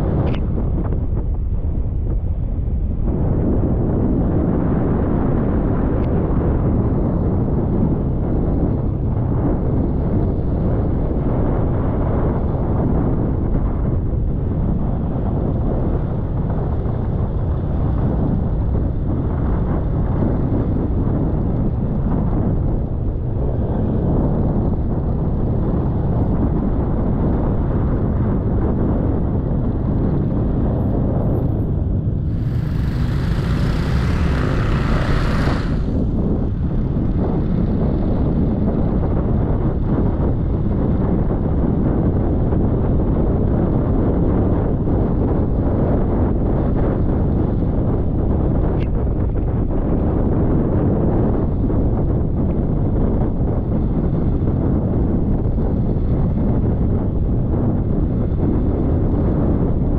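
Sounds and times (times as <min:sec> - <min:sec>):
wind buffeting microphone: 0:00.0 - 0:59.9
scooter engine running: 0:29.9 - 0:39.9.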